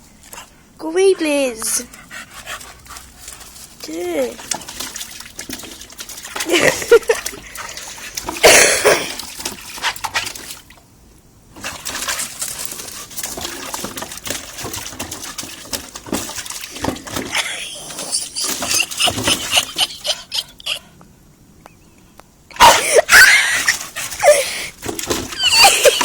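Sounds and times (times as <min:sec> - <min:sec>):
dog panting and snuffling: 0:00.2 - 0:08.4, 0:23.5 - 0:26.0.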